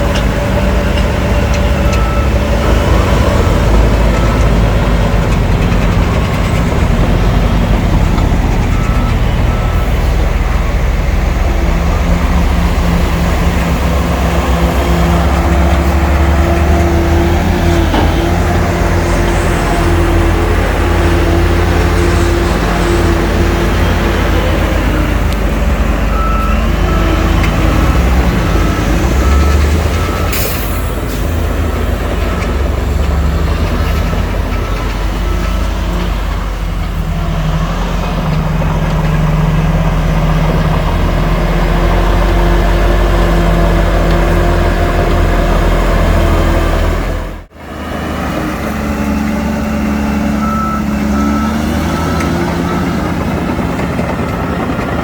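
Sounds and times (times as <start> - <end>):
heavy diesel machinery running: 0.0 - 55.0
reversing alarm beeping: 0.1 - 38.4, 49.0 - 55.0.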